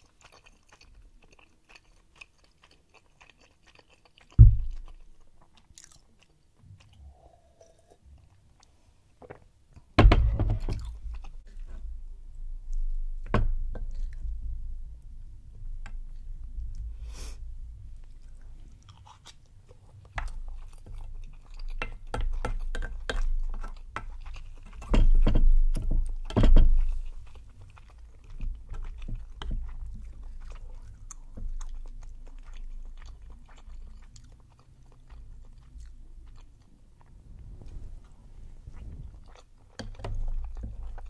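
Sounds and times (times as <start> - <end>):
wet chewing mouth sounds: 0.0 - 9.2, 18.0 - 41.0.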